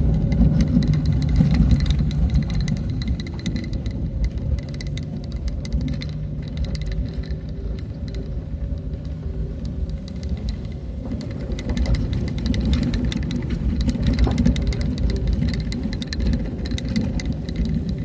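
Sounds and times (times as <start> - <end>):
engine and road rumble: 0.0 - 18.0
rattling clicks and knocks: 0.0 - 18.0.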